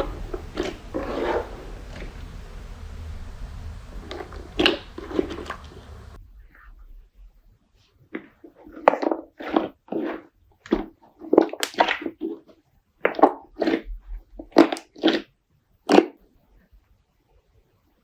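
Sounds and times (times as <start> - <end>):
slime squishing: 0.0 - 6.2, 8.1 - 15.3.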